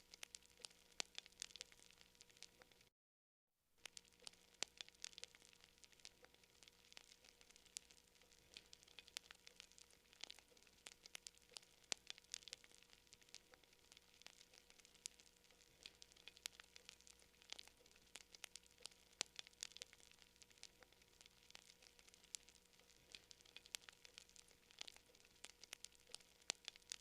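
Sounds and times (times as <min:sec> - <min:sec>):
campfire crackling and popping: 0:00.0 - 0:02.9, 0:03.8 - 0:27.0.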